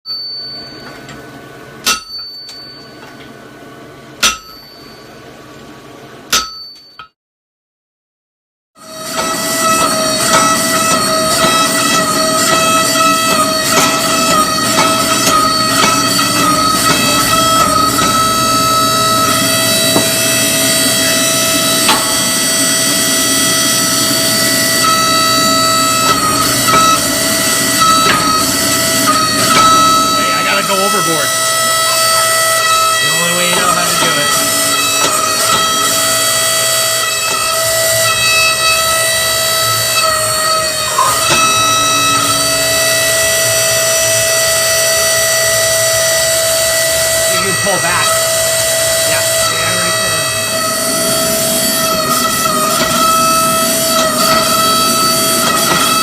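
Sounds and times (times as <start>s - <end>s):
hammer ringing on anvil: 1.8s - 3.1s, 4.2s - 5.1s, 6.3s - 7.2s, 9.1s - 36.5s
machinery high-pitched whine: 8.8s - 56.0s
steady hum: 8.9s - 56.0s.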